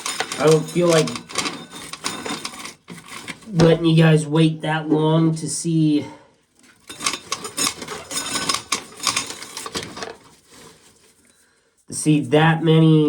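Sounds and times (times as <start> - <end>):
corn kernels rattling: 0.0 - 3.8, 6.7 - 11.3.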